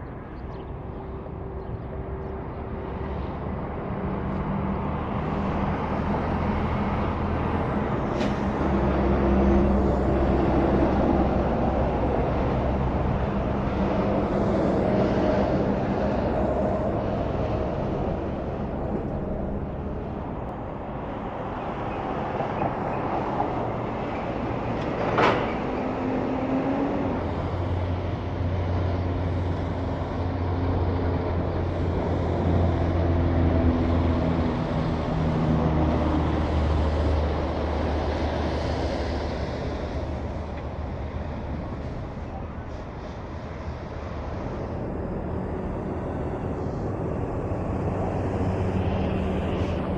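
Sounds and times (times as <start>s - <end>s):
trucks driving past: 0.0s - 49.9s.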